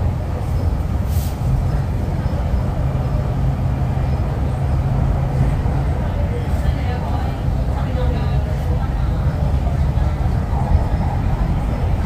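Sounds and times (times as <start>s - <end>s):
train interior rumble: 0.0s - 12.0s
brief hiss: 1.0s - 1.5s.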